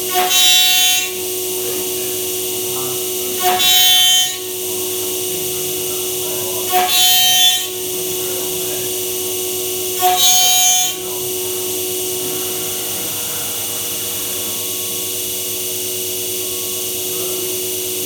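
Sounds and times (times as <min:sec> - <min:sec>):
cnc machine whining: 0:00.0 - 0:18.0
harsh hissing machine burst: 0:00.0 - 0:18.0.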